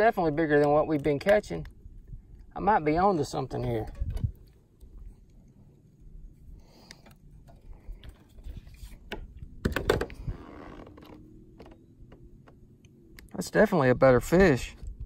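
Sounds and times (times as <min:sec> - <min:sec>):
clicks and knocks on kayak: 0:06.9 - 0:12.6.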